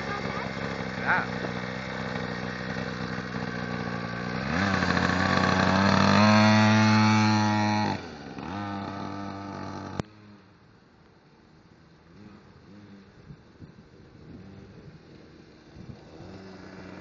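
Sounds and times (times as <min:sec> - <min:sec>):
small engine idling and revving: 0:00.0 - 0:17.0.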